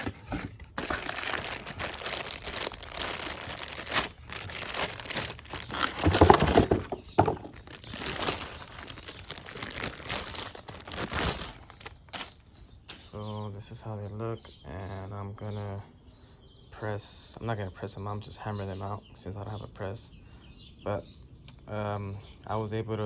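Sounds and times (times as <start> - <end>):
packaging crinkling: 0.0 - 13.2.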